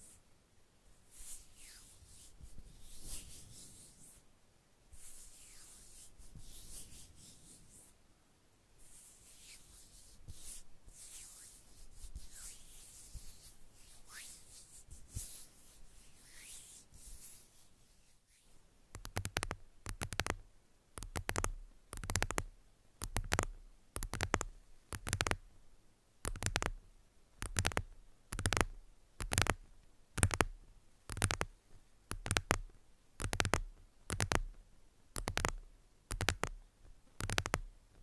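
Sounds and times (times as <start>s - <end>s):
soft rubbing strokes: 0.0s - 4.3s, 4.9s - 8.0s, 8.8s - 18.7s.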